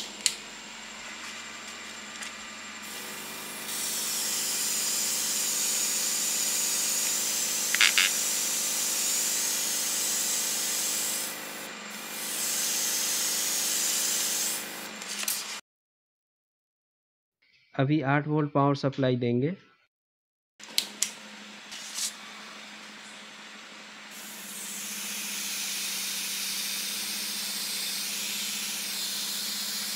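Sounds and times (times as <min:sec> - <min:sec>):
air compressor humming: 0:00.0 - 0:15.5, 0:20.6 - 0:29.9
airbrush spraying with hiss: 0:02.8 - 0:15.6, 0:24.1 - 0:29.9.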